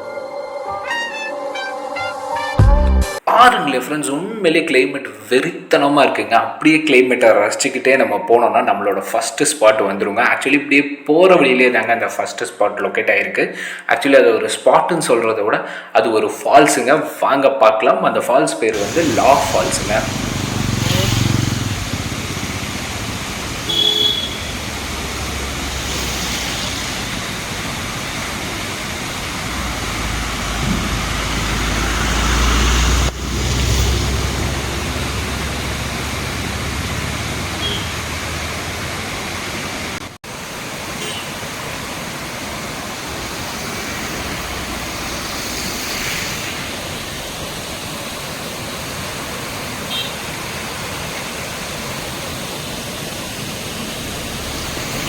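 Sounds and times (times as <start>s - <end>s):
waterfall rushing: 18.7s - 55.0s.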